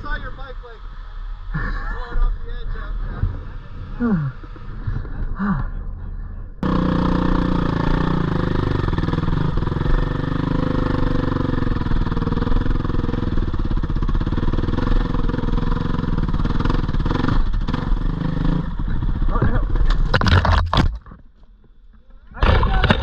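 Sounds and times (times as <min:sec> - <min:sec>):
dirt bike engine running: 0:06.6 - 0:21.0.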